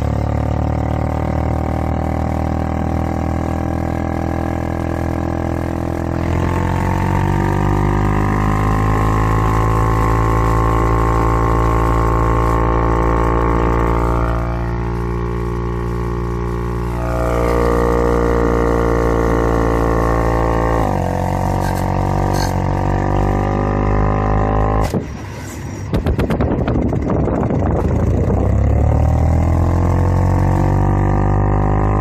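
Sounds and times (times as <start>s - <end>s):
car air vent droning: 10.6s - 22.6s.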